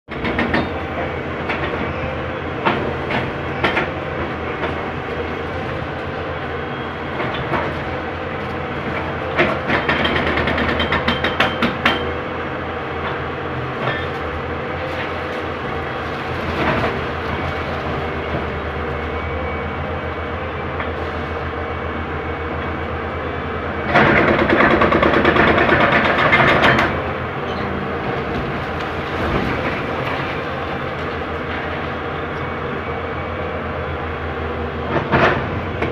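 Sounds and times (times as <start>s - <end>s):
knocks and clanks: 0.1s - 0.8s, 8.9s - 12.1s, 23.9s - 27.0s
excavator diesel engine running: 0.1s - 35.9s.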